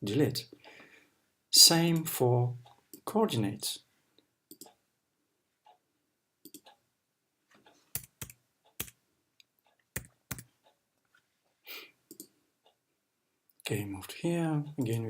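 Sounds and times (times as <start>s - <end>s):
keyboard typing clicks: 4.5s - 4.8s, 6.4s - 6.8s, 7.9s - 9.0s, 9.9s - 10.5s, 12.1s - 12.3s.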